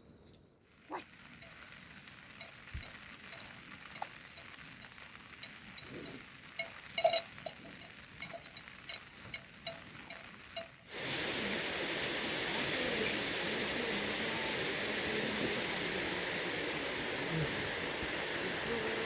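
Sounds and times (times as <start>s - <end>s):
heavy rain hissing: 0.7s - 19.0s
animal bell clanking: 5.5s - 10.8s.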